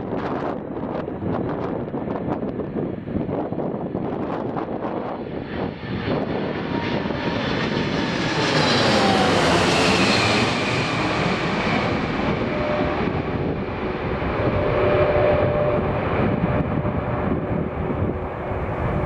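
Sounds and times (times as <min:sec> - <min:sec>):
jet airliner roar: 0:00.0 - 0:19.0
jet engine whine falling: 0:04.4 - 0:19.0.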